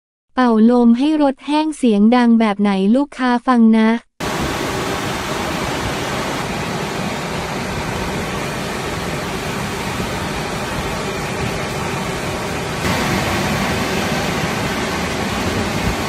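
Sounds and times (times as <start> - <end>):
drying blowers rushing air: 4.2 - 16.0.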